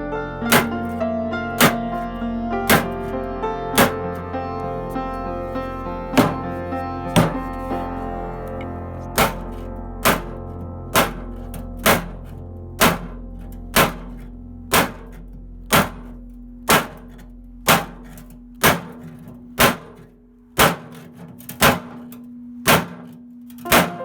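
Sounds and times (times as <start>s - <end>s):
background music: 0.0s - 16.8s, 23.6s - 24.0s
hammer striking metal: 0.5s - 3.2s, 3.8s - 4.8s, 6.2s - 7.8s, 8.4s - 24.0s.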